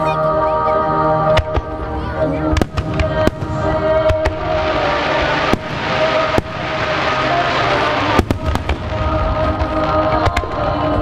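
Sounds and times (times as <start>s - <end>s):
fireworks bangs: 2.5s - 11.0s
hiss of burning fireworks: 2.6s - 11.0s.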